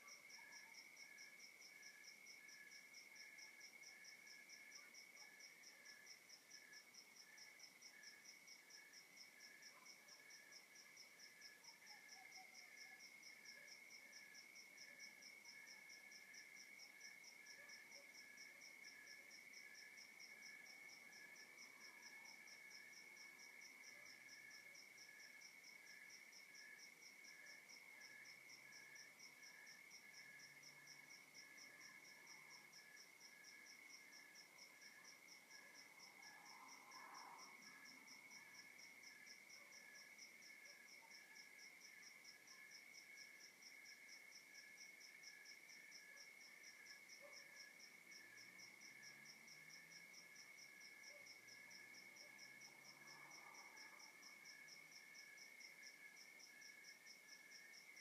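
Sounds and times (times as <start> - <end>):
night insects chorus: 0.0 - 58.0.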